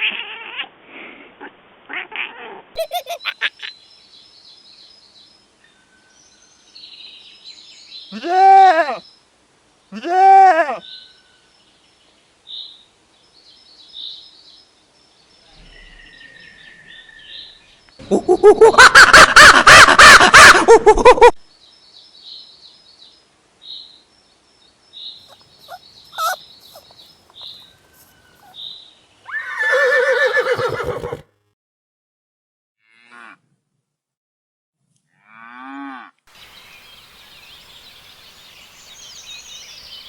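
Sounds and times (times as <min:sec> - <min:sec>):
faint high chirps: 0:25.2 - 0:28.6
loud pulsing farm animal call: 0:25.3 - 0:28.6, 0:29.3 - 0:31.2.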